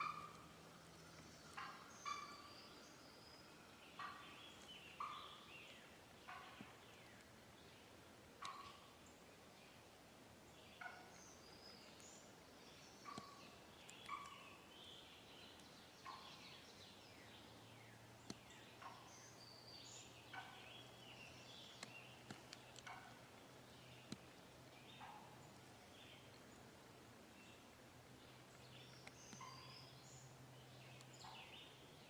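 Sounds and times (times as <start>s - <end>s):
faint turkey calls: 0.0s - 7.3s, 8.3s - 9.1s, 10.6s - 12.3s, 12.9s - 26.8s, 28.2s - 30.2s
songbirds chirping: 0.0s - 32.0s.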